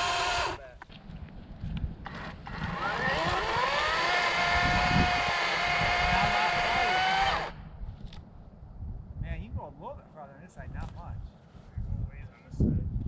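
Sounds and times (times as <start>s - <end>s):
electric chainsaw motor whining: 0.0s - 0.6s, 2.0s - 7.6s.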